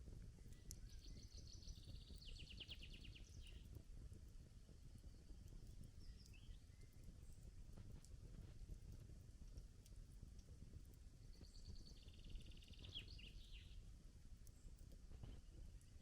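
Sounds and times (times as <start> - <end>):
low outdoor air rumble: 0.0 - 16.0
campfire crackling: 3.6 - 11.4.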